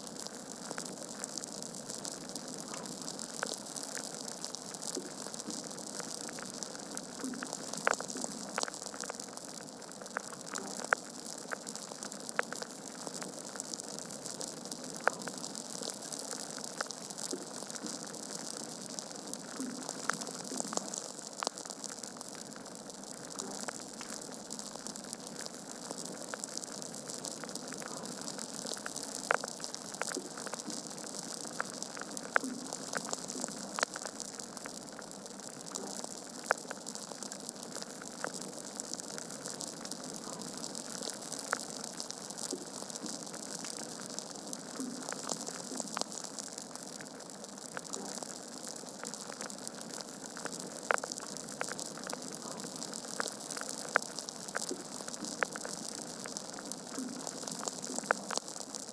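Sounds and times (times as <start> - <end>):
wood fire crackling: 0.1 - 58.9.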